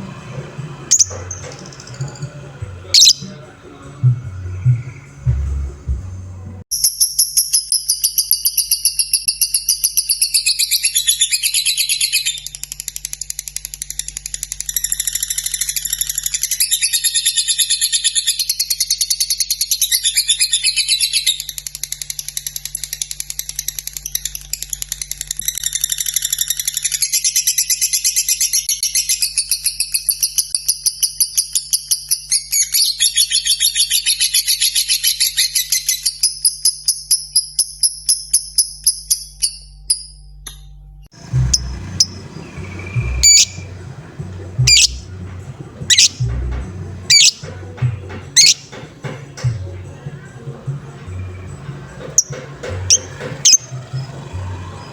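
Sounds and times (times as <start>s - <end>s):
bird fast ticking chirps: 0.9s - 2.2s, 3.0s - 3.4s, 41.4s - 45.2s, 45.9s - 46.3s, 47.1s - 47.4s, 48.4s - 48.7s.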